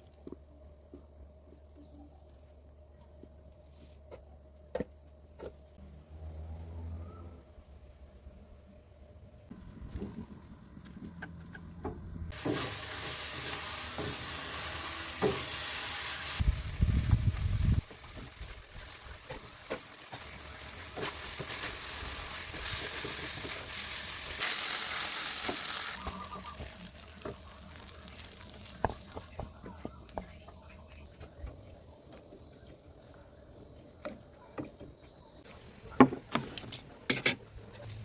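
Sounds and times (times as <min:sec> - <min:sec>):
insects shrilling: 0:12.3 - 0:38.0.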